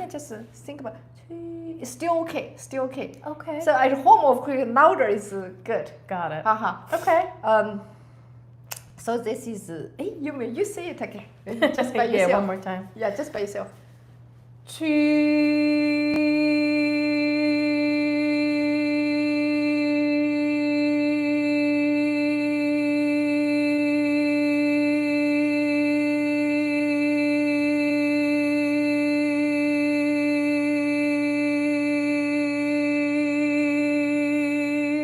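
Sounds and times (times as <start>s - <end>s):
person singing a long note: 14.7s - 35.0s.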